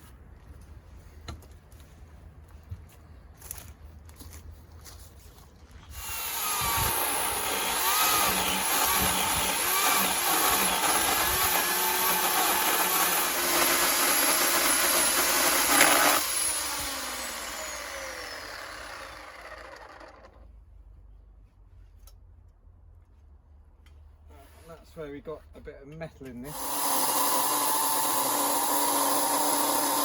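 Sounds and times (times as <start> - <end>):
electric chainsaw cutting wood: 5.9 - 20.4, 26.5 - 30.0.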